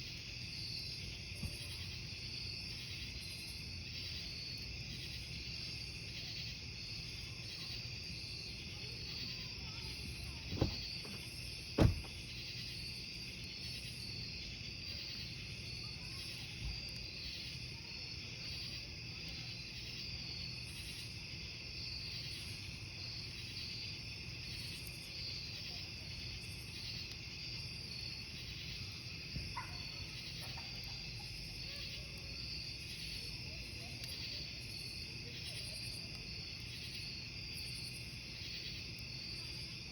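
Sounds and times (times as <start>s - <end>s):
campfire hissing: 0.0s - 39.9s
crickets chirping: 0.0s - 39.9s
burning wood popping: 9.9s - 12.3s.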